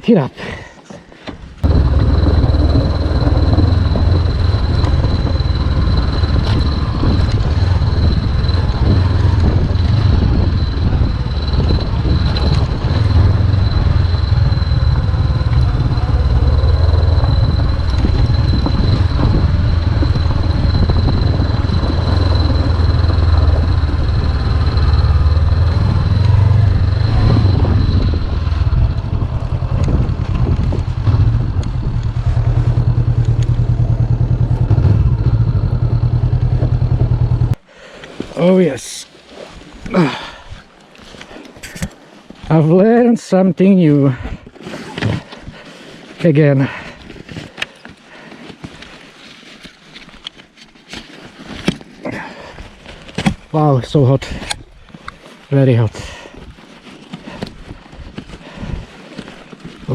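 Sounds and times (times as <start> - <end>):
motorcycle engine running: 1.6 - 37.6
thin high whine: 1.6 - 37.6.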